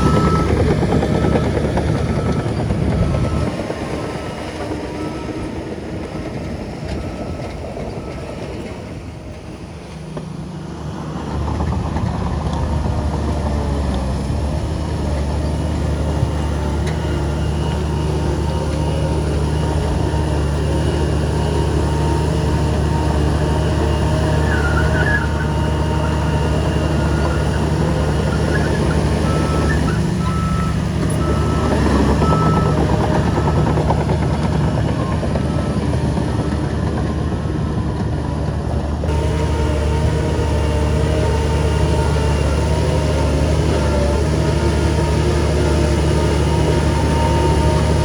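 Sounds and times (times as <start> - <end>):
reversing alarm beeping: 0.0 - 6.3, 16.0 - 37.0
heavy diesel machinery running: 0.0 - 48.0.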